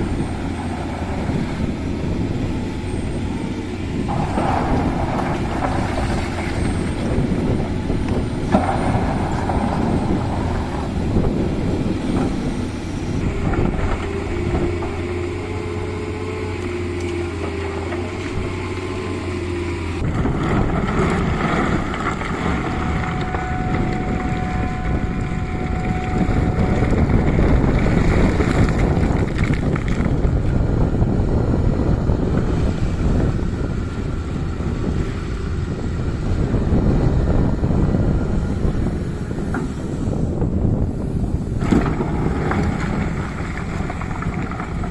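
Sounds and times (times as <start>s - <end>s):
excavator diesel engine running: 0.0s - 44.9s
faint whine: 21.3s - 28.4s.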